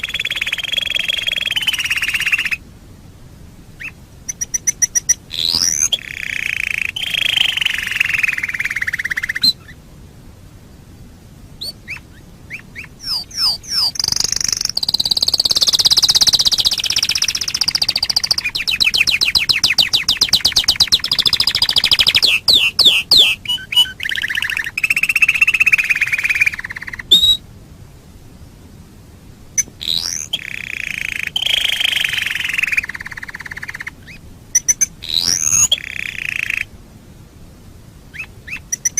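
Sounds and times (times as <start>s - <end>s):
canary singing trills: 0.0s - 2.6s, 3.8s - 9.8s, 11.6s - 27.4s, 29.6s - 36.7s, 38.1s - 38.9s.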